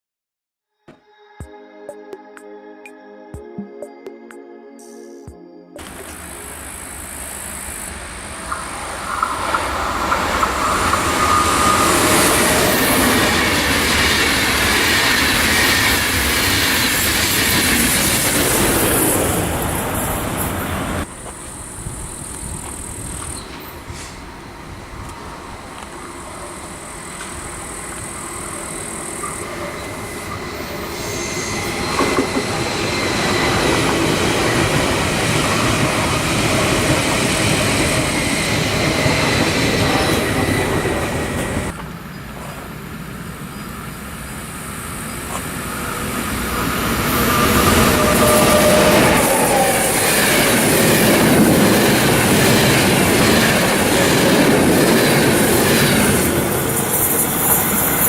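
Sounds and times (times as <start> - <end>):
faint high steady tones: 1.4 - 14.7
train passing with loud rumble: 5.8 - 58.0.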